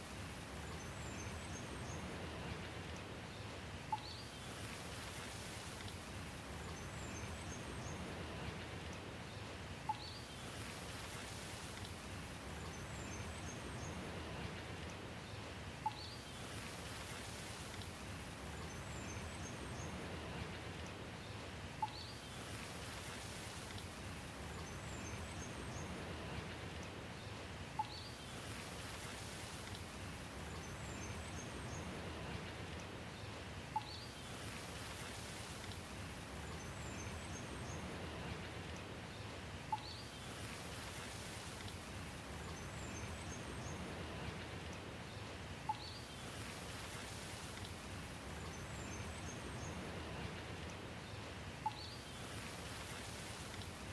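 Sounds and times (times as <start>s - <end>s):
soft rain: 0.0s - 53.9s
faint high bird chirps: 27.8s - 28.2s, 51.6s - 52.0s.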